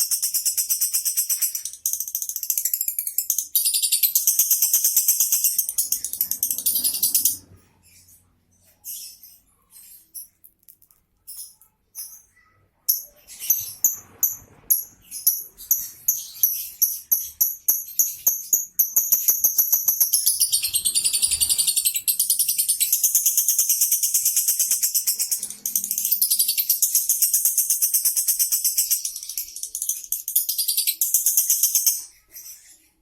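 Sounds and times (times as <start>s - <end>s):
lovebird chirping trill: 11.2s - 32.8s.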